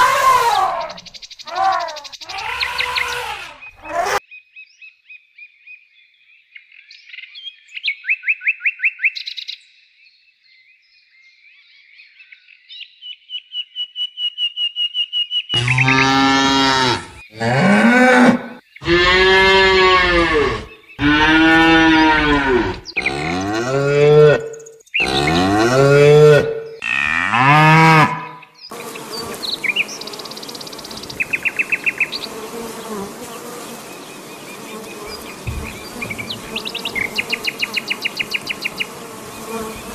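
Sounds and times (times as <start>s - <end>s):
calf mooing: 0.0s - 4.2s, 15.6s - 28.4s, 35.1s - 37.3s
honeybees buzzing: 0.0s - 4.2s, 15.6s - 17.9s, 18.8s - 27.3s, 28.7s - 39.9s.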